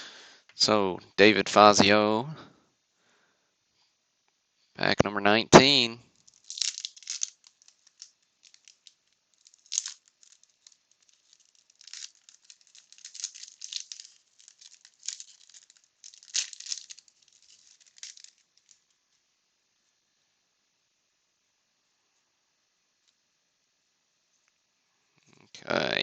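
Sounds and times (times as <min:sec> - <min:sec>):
wax paper wrapper crinkling and tearing: 0:06.1 - 0:19.0.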